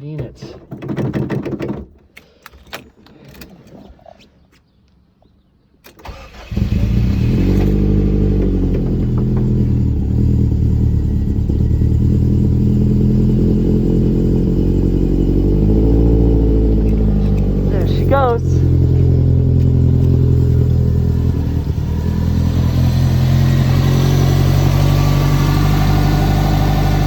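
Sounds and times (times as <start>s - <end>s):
car engine cranking and idling: 5.8s - 27.0s.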